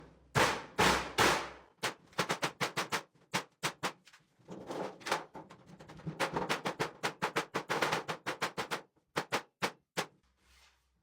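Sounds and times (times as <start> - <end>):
quick sharp clicks and knocks: 0.4 - 4.0, 6.1 - 10.1.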